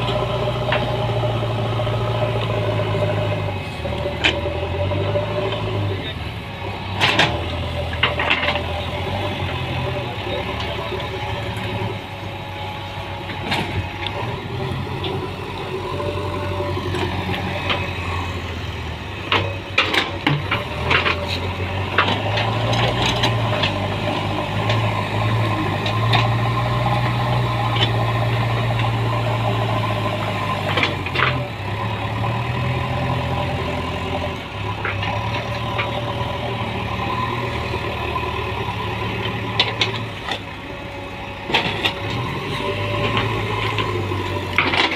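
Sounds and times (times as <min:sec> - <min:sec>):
heavy diesel engine running: 0:00.0 - 0:44.9
metal clanks and knocks: 0:43.0 - 0:44.9.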